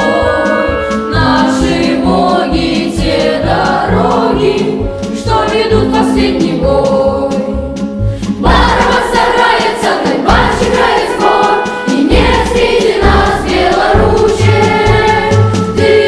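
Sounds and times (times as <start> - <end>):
children's choir singing: 0.0 - 7.8, 8.4 - 16.0
low accompaniment: 0.0 - 16.0.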